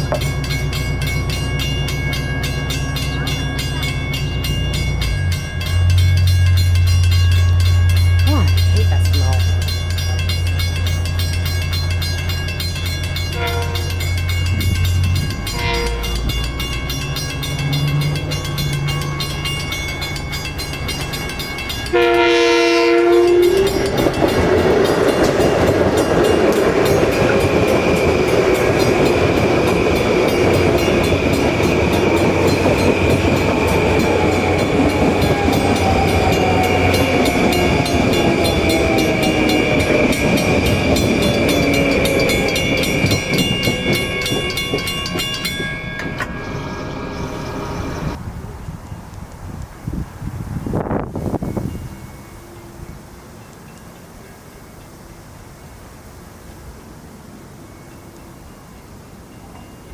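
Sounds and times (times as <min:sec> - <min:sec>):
train passing with wheel clatter: 0:00.0 - 0:59.9
train horn blast: 0:13.3 - 0:14.1, 0:15.5 - 0:16.3, 0:21.9 - 0:24.0.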